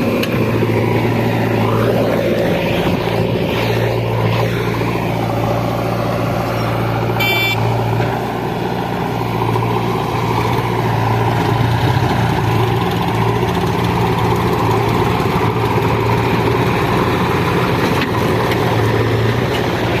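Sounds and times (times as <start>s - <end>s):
diesel engine running: 0.0s - 20.0s
short high-pitched beep: 7.2s - 7.7s.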